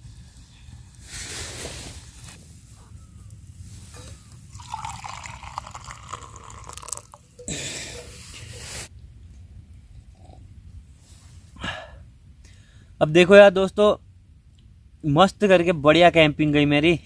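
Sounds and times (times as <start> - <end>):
water pouring into a pot: 4.5 - 8.8.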